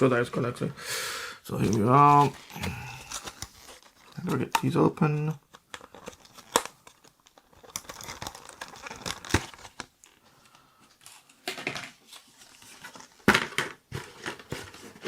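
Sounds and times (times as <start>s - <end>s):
packaging crinkling and tearing: 1.6s - 10.2s.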